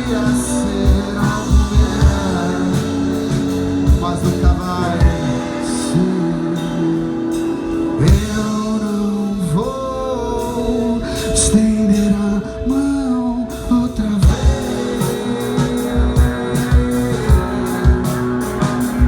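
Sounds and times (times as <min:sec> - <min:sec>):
low drum thumps: 0:00.0 - 0:06.8, 0:14.2 - 0:19.0
person singing: 0:00.0 - 0:19.0
rock band playing: 0:00.0 - 0:19.0.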